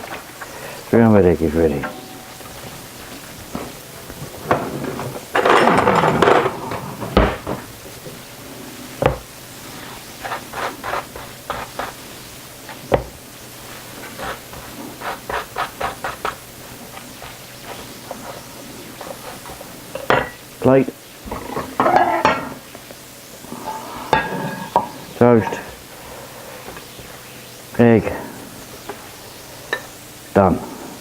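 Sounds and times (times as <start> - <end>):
crockery knocking and clattering: 1.7 - 7.7, 21.6 - 22.6.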